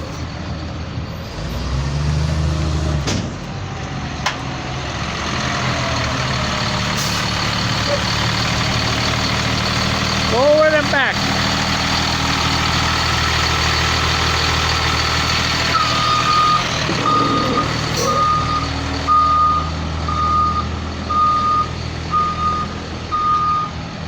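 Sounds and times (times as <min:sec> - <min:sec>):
bus engine running: 0:00.0 - 0:24.0
reversing alarm beeps: 0:15.7 - 0:23.8.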